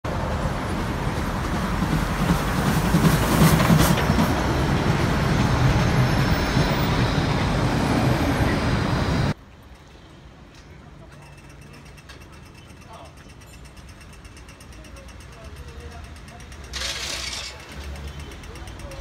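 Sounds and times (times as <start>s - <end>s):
train wheels on rails: 0.1s - 9.4s, 10.6s - 19.0s.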